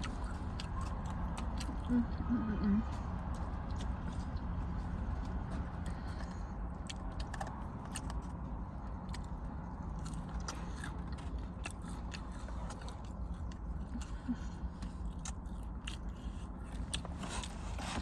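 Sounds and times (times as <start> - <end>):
biting and chewing food: 0.0 - 18.0
mouth clicks and crunches: 0.0 - 18.0
steady low hum: 0.0 - 18.0.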